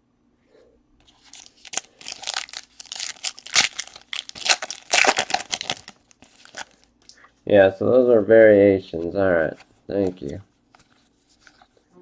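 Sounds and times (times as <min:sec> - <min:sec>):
plastic packaging crinkling and tearing: 0:01.1 - 0:06.9.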